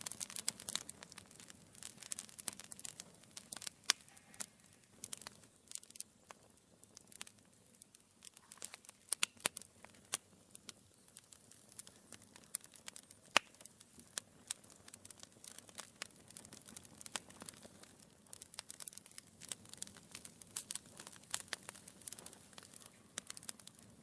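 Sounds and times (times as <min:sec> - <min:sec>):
faint steady hiss: 0:00.0 - 0:24.0
wood fire crackling: 0:00.0 - 0:24.0
logs popping and snapping: 0:08.2 - 0:23.8.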